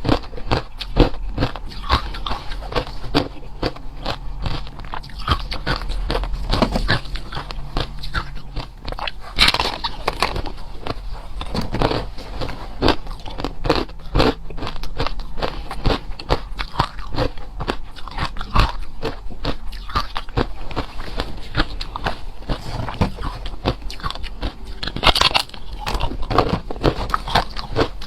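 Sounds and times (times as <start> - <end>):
person chewing ice: 0.0 - 28.0.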